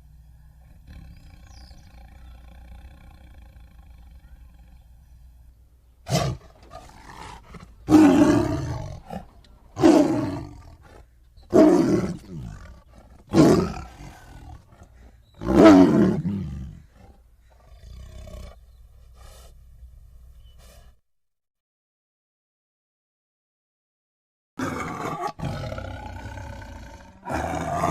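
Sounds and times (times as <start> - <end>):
tiger roaring: 6.0 - 18.6, 24.6 - 27.9.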